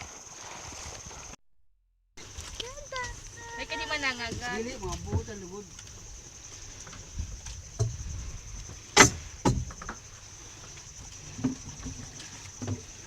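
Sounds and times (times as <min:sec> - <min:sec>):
insects droning: 0:00.0 - 0:01.4, 0:02.2 - 0:13.0
sharp knocks: 0:09.0 - 0:10.0.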